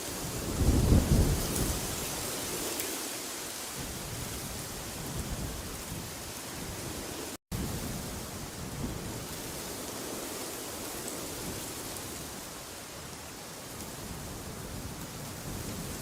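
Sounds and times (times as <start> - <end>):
rushing wind: 0.0 - 16.0
low rumbling wind gust: 0.1 - 2.6.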